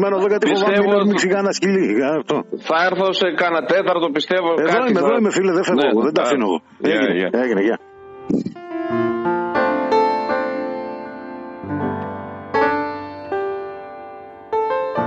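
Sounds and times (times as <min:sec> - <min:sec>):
slow piano music: 0:06.8 - 0:15.0.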